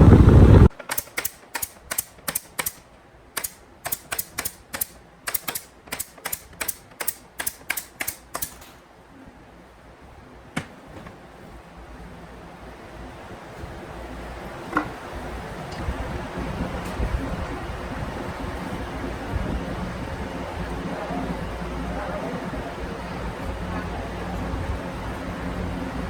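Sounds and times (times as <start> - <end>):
loud steady noise: 0.0 - 8.6
sharp taps: 3.4 - 8.6.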